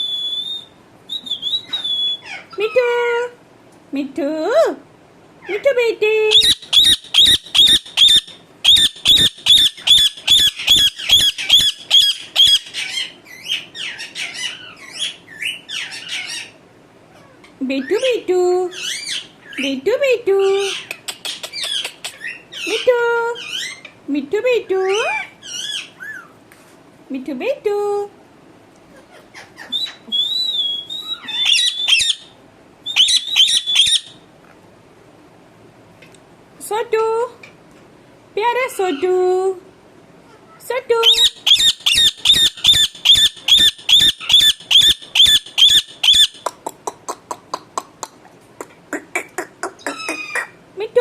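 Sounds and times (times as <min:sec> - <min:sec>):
parrot screeching: 0:00.0 - 0:02.9, 0:06.3 - 0:17.4, 0:25.0 - 0:26.4, 0:29.3 - 0:32.3, 0:32.9 - 0:34.2, 0:41.0 - 0:46.4, 0:49.8 - 0:50.6
parrot chirps and squeaks: 0:00.0 - 0:03.0, 0:06.3 - 0:19.7, 0:20.5 - 0:24.0, 0:24.8 - 0:26.4, 0:29.1 - 0:34.2, 0:41.0 - 0:46.5, 0:49.2 - 0:50.6.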